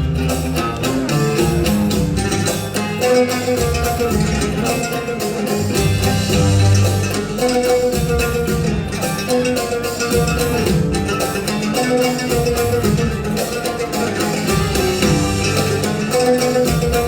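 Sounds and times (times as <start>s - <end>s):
oud plucked notes: 0.0s - 17.0s.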